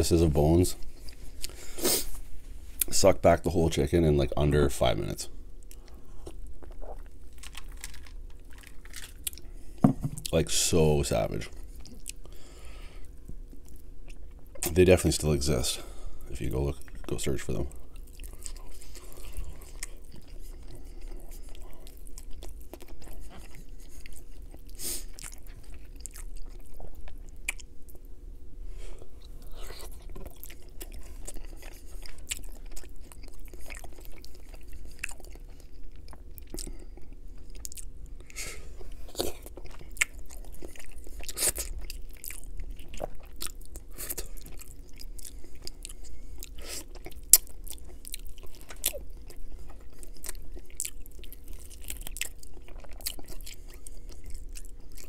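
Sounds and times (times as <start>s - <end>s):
close chewing of chicken: 5.6s - 28.2s, 28.9s - 55.0s
crunching: 5.8s - 9.5s.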